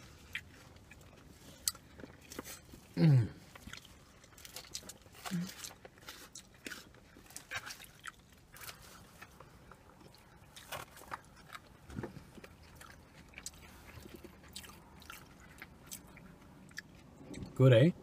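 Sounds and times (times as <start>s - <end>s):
chewing and mouth sounds: 0.0s - 17.6s.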